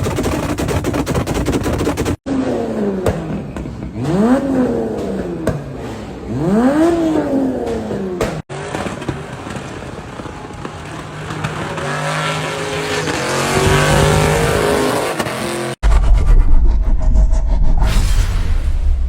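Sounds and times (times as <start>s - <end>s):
car engines revving hard: 2.1s - 15.8s.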